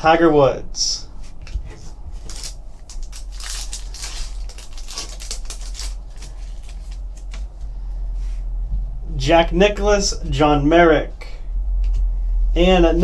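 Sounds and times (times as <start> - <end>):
cards and foil crinkling: 1.8 - 7.7.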